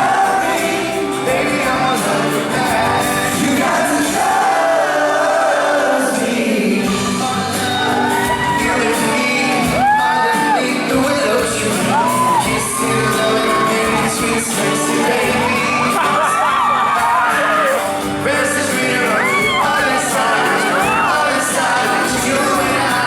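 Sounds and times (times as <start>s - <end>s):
boy band singing pop song: 0.0s - 23.0s
fans whooping and screaming: 6.9s - 23.0s.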